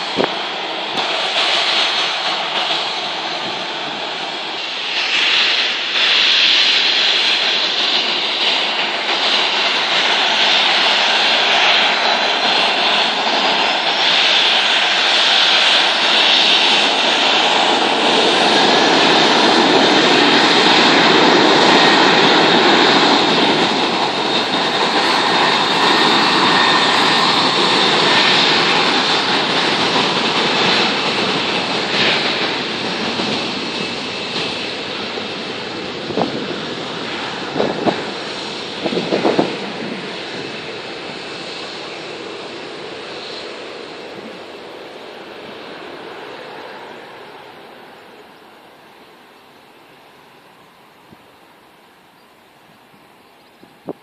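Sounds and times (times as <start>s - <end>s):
airplane engine taking off: 0.0s - 54.0s.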